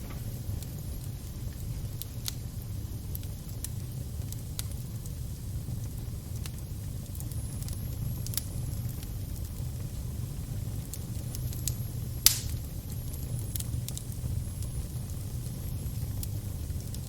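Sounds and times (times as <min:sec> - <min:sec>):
fire popping: 0:00.0 - 0:17.0
low rumble of flame: 0:00.0 - 0:17.0.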